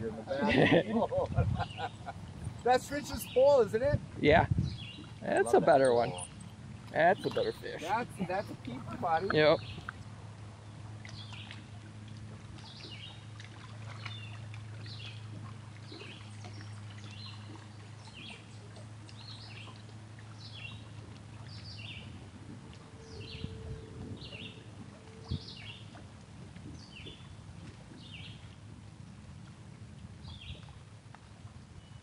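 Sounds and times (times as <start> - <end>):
steady low hum: 0.0 - 32.0
songbird chirping: 1.6 - 3.6, 7.0 - 9.9.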